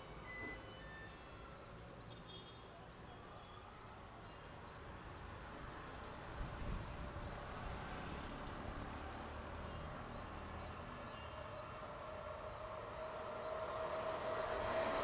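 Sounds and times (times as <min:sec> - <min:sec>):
train rumble: 0:12.1 - 0:15.0.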